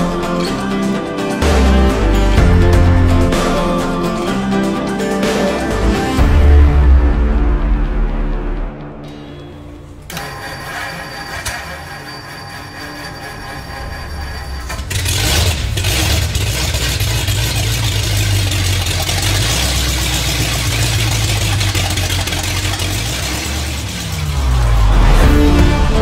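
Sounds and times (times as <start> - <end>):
car engine starting and running: 13.2 - 26.0.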